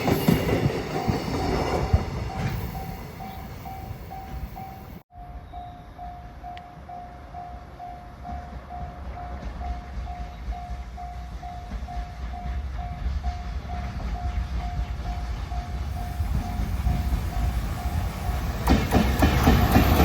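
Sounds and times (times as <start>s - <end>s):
freight train rumble: 0.0s - 20.0s
warning bell ringing: 0.9s - 13.2s.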